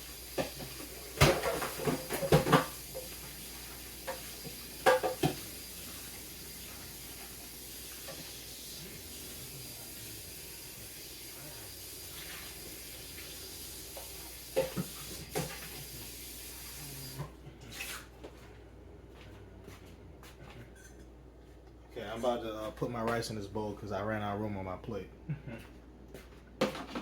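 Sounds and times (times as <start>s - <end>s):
kitchenware clattering: 0.3s - 8.4s, 13.8s - 16.0s, 26.6s - 27.0s
faint hiss: 2.3s - 17.3s.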